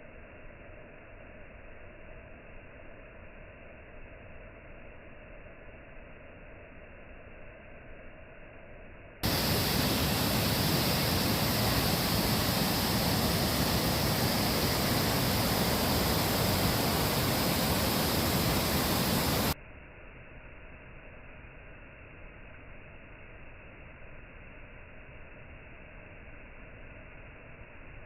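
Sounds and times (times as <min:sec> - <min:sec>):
waterfall rushing: 0:09.2 - 0:19.6.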